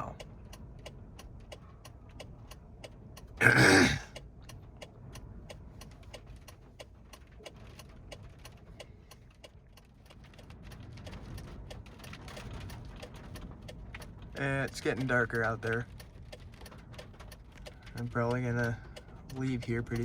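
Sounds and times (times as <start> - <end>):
turn signal ticking: 0.0 - 20.0.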